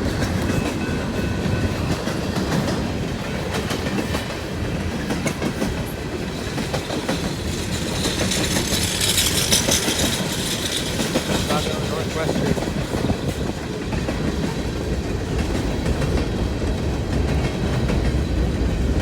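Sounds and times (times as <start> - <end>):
train wheels rumbling on rails: 0.0 - 19.0
wheels clacking over rail joints: 0.0 - 19.0
freight cars rattling: 6.8 - 13.5.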